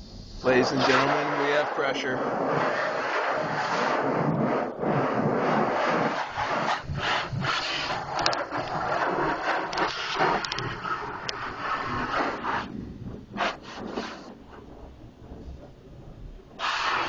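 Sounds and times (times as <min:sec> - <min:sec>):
pressure washer spraying water: 0:00.0 - 0:12.8, 0:16.6 - 0:17.0.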